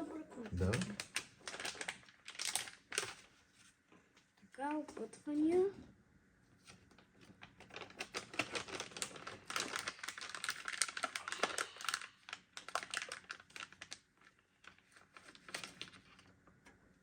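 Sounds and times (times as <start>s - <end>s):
packaging crinkling and clicking: 0.6s - 3.3s, 6.7s - 16.8s.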